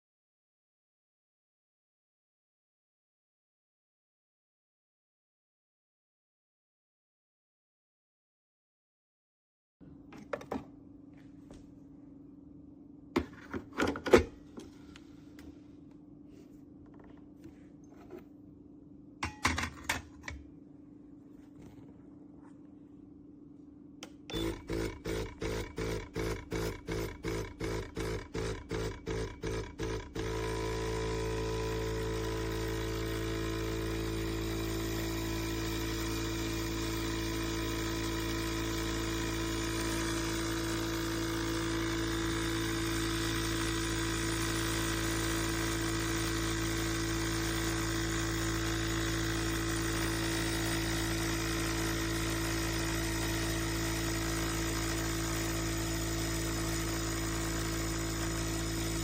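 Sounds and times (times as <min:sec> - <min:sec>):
espresso machine pump pulsing: 0:24.3 - 0:59.0.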